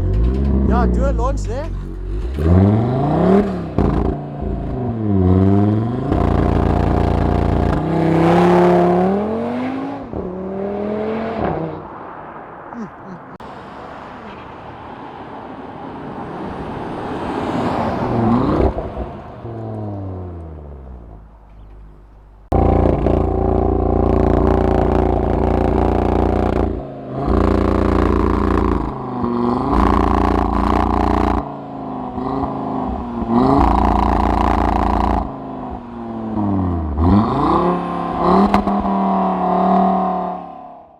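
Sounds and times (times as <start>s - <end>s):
car engine accelerating: 0.0s - 40.9s
deep engine drone: 20.1s - 29.0s.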